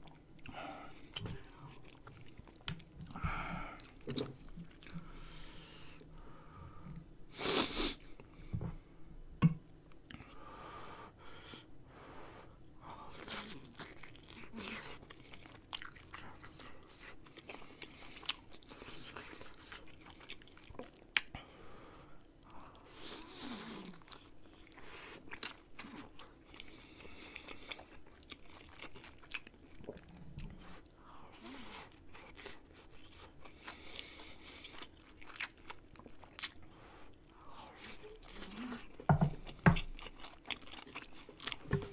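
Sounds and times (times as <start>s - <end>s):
person chewing wetly: 0.0s - 5.2s, 13.2s - 21.3s, 23.8s - 41.9s.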